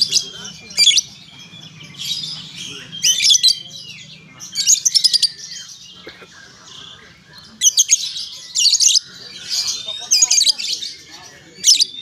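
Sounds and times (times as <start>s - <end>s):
small bird chirping: 0.0s - 6.0s, 7.0s - 12.0s.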